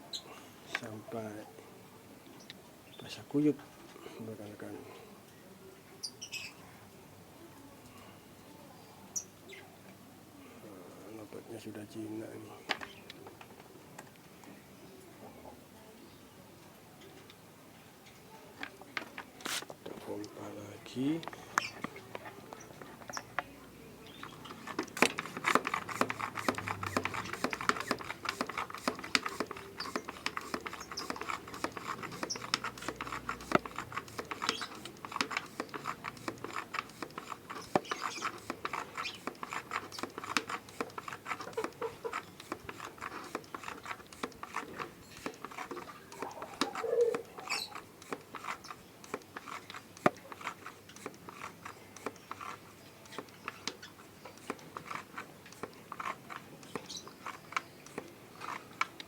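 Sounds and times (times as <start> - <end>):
hand pump sprayer pumping: 19.0 - 59.0
water spray pattering: 24.3 - 53.2.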